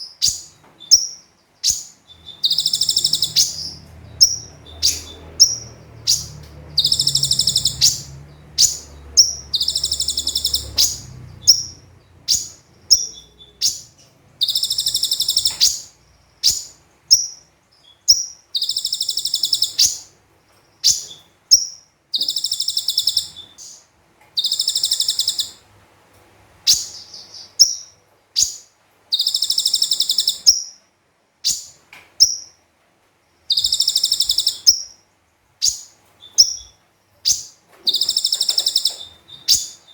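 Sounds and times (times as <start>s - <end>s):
bird chirps: 0.0s - 25.6s, 26.7s - 30.8s, 31.4s - 32.6s, 33.4s - 39.9s
bird rattling trills: 0.2s - 17.4s, 18.1s - 20.1s, 20.8s - 23.4s, 24.4s - 25.6s, 28.4s - 30.6s, 33.5s - 35.0s, 35.6s - 39.9s.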